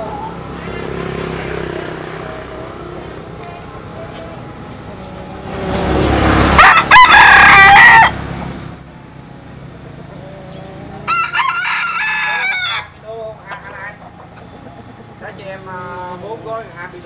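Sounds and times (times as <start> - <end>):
rooster crowing: 6.5 - 8.3, 11.0 - 13.0.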